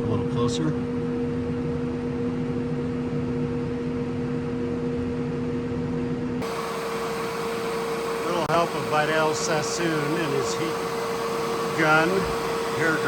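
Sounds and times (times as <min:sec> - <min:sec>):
heat pump compressor humming: 0:00.0 - 0:13.0.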